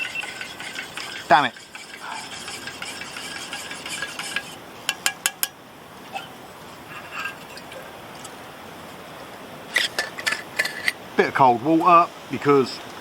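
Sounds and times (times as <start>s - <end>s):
liquid poured and stirred in mug: 0.0s - 5.5s
spoon clinking against mug: 4.0s - 5.6s.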